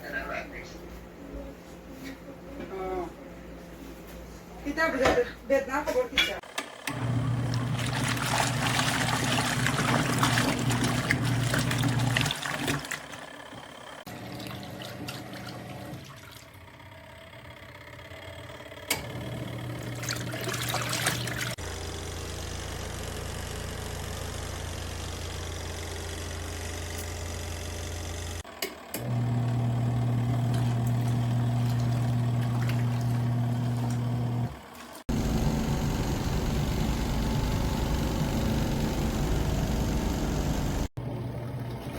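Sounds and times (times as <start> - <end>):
washing machine motor hum: 0.0 - 41.9
water splashing and trickling: 20.0 - 21.6.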